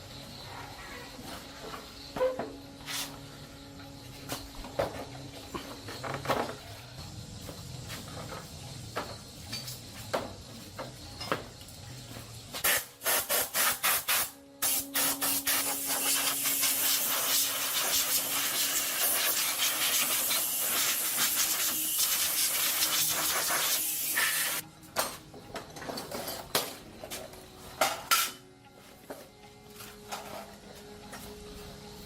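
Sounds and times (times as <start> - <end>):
hissing spray: 12.6 - 24.6.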